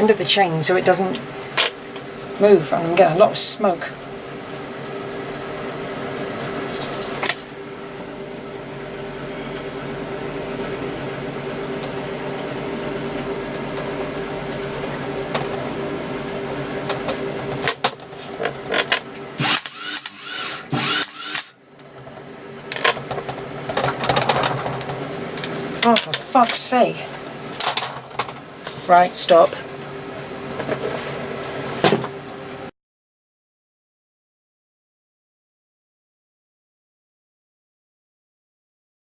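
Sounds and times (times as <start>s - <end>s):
welding arc buzzing and crackling: 19.4s - 21.6s.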